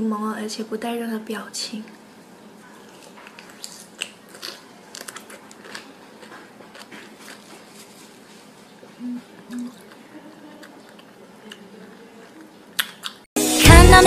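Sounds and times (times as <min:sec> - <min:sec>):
wet chewing crunches: 0:02.8 - 0:08.7, 0:09.3 - 0:13.2
person humming closed-mouth: 0:09.0 - 0:09.8.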